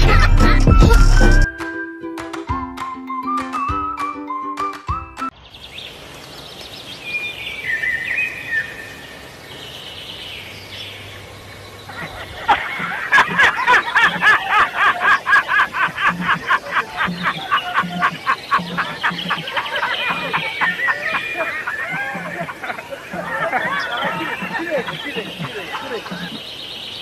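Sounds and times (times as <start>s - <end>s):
fast rhythmic pitched sounds: 12.0s - 26.4s.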